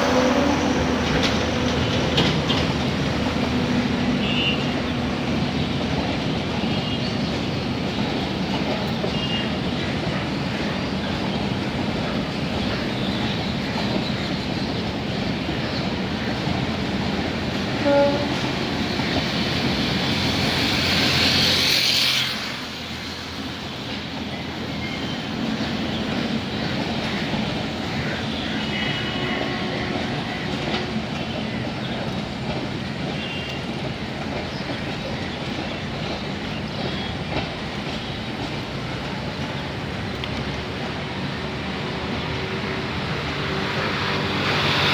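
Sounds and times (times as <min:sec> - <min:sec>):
train wheels clickety-clack: 0:00.0 - 0:44.9
train horn toot: 0:03.8 - 0:05.0, 0:17.7 - 0:19.1, 0:28.3 - 0:31.3, 0:33.1 - 0:33.8.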